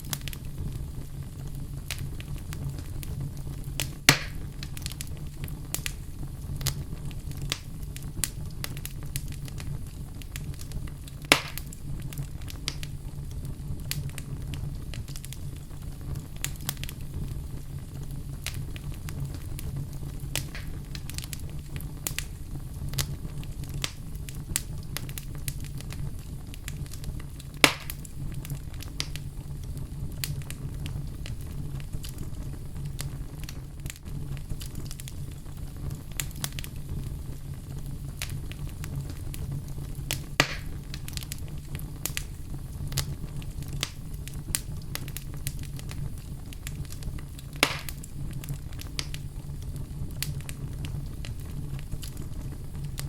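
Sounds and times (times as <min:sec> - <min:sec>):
fire crackling: 0:00.0 - 0:53.0
low rumble of flames: 0:00.0 - 0:53.0
sharp pops: 0:04.1 - 0:04.4, 0:11.3 - 0:11.6, 0:27.6 - 0:28.0, 0:40.4 - 0:40.8, 0:47.6 - 0:48.0.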